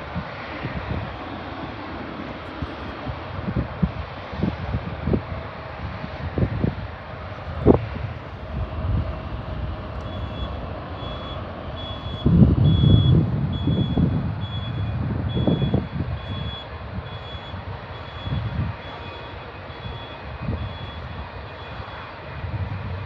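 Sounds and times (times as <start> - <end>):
low rumbling: 5.2 - 16.5
reversing alarm beeping: 7.6 - 22.2.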